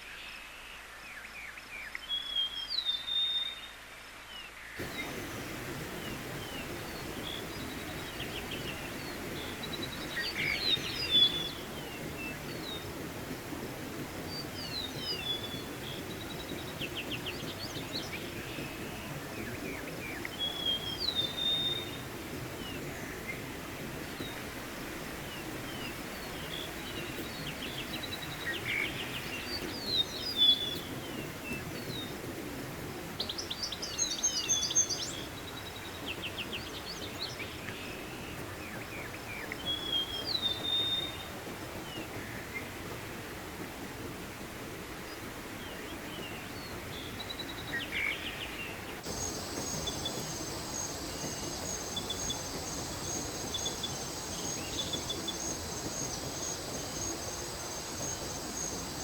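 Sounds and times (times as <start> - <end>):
birds chirping and trilling: 4.8 - 32.3, 45.2 - 59.0
mountain stream rushing: 4.8 - 59.0.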